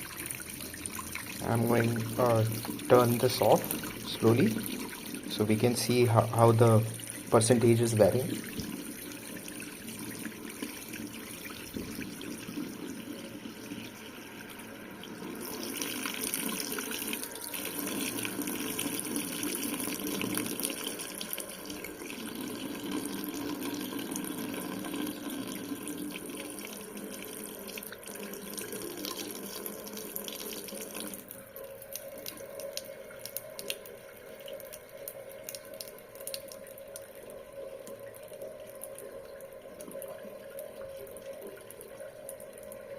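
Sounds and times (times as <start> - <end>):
faint steady hum: 0.0 - 42.9
water running from faucet into sink: 0.0 - 42.9.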